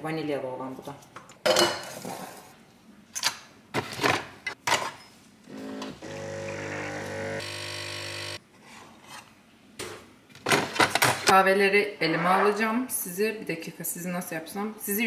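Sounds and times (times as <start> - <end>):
coffee machine pump humming: 5.6 - 8.4.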